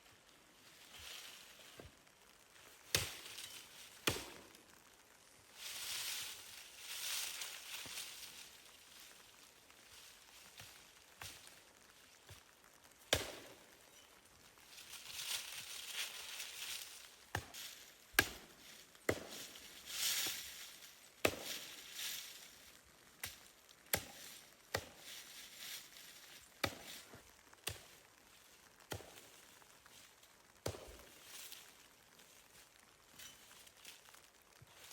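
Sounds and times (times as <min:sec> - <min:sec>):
axe chopping wood: 0:04.0 - 0:04.4, 0:13.1 - 0:13.5, 0:17.3 - 0:18.5, 0:19.1 - 0:19.5, 0:21.2 - 0:21.7, 0:23.2 - 0:25.0, 0:26.6 - 0:27.1, 0:30.6 - 0:31.0.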